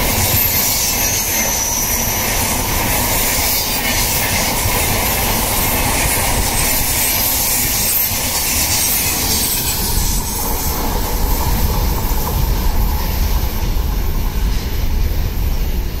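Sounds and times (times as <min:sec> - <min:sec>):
low train rumble: 0:00.0 - 0:16.0
train wheels rushing on track: 0:00.0 - 0:16.0.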